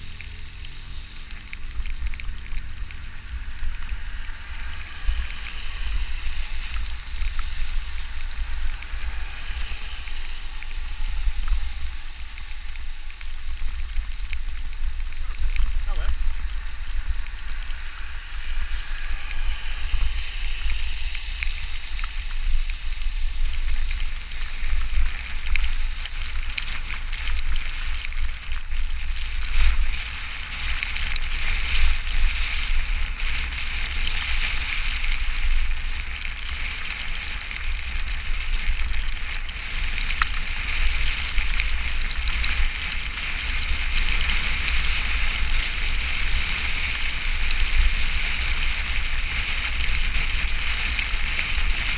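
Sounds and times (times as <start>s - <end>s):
rain on wet road: 0.0s - 51.9s
wind rumbling on microphone: 0.0s - 51.9s.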